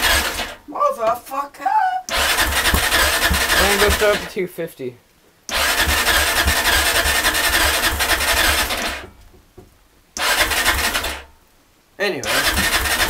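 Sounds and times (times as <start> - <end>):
small engine cranking: 0.0 - 0.6, 2.1 - 4.2, 5.5 - 9.0, 10.2 - 11.2, 12.2 - 13.0.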